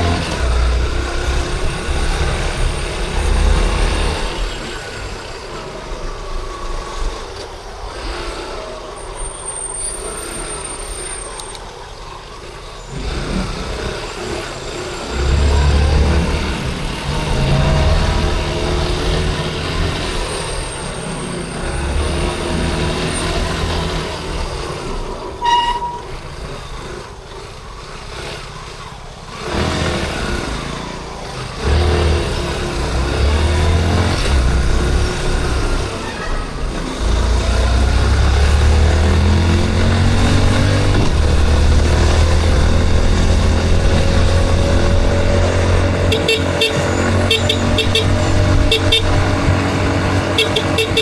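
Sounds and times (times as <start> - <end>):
short vehicle horn beep: 25.4 - 26.2, 46.1 - 51.0
motorcycle engine running: 34.6 - 51.0.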